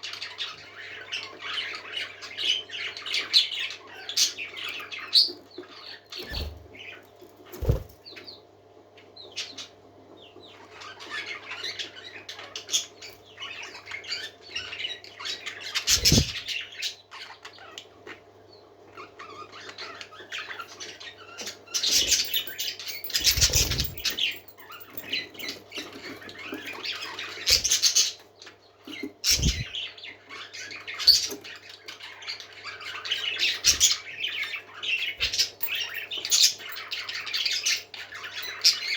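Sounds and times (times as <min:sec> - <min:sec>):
parakeets chattering and warbling: 0:00.0 - 0:38.9
wings flapping: 0:07.5 - 0:08.0, 0:15.9 - 0:16.4, 0:22.0 - 0:25.0, 0:29.3 - 0:29.7.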